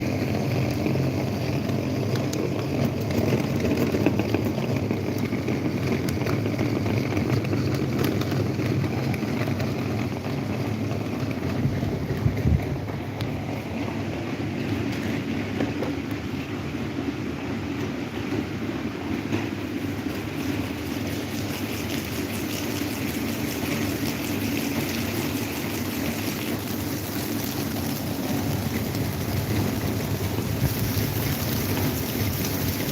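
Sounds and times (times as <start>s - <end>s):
electric fan motor hum: 0.0s - 32.9s
air rushing from fan blades: 10.8s - 32.9s.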